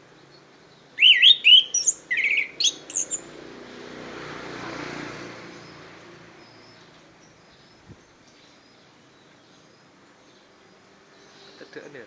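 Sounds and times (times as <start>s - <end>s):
soft rush of background noise: 0.0s - 12.0s
thrush singing whistled notes: 0.9s - 3.4s.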